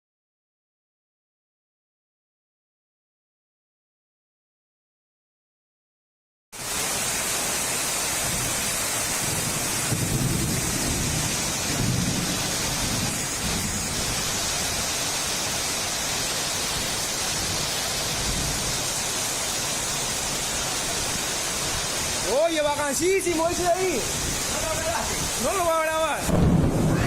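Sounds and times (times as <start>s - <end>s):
heavy rain: 6.6s - 27.0s
thunder rumbling: 9.2s - 15.3s, 26.2s - 27.0s.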